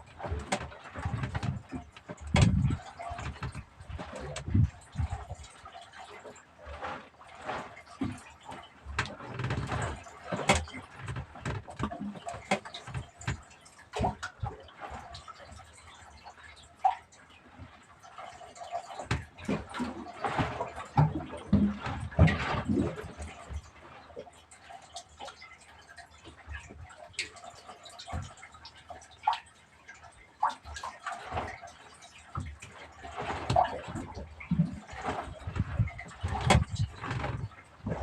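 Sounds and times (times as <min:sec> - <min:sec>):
water splashing and sloshing: 0:00.0 - 0:38.0
knocks and clicks: 0:00.3 - 0:05.2, 0:33.5 - 0:38.0.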